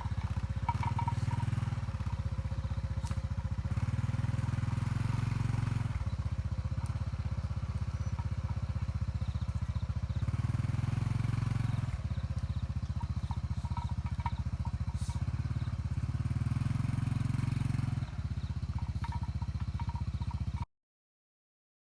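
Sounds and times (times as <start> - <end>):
small engine running: 0.0 - 20.6.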